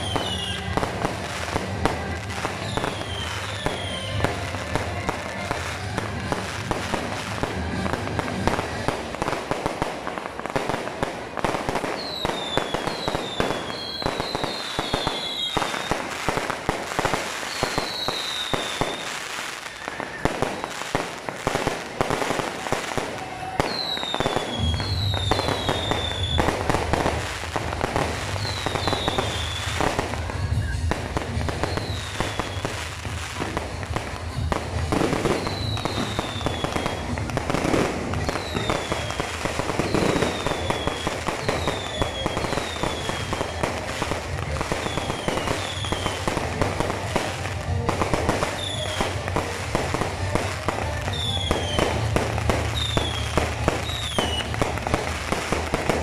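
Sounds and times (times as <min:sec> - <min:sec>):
fireworks crackling and popping: 0:00.0 - 0:56.0
falling whistles: 0:02.6 - 0:04.2, 0:23.7 - 0:26.4, 0:38.4 - 0:43.6, 0:52.8 - 0:54.5.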